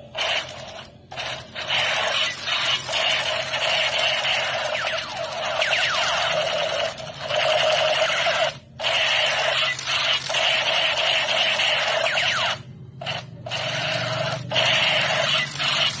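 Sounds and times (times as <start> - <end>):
toy gun harsh buzzing: 0.0 - 16.0.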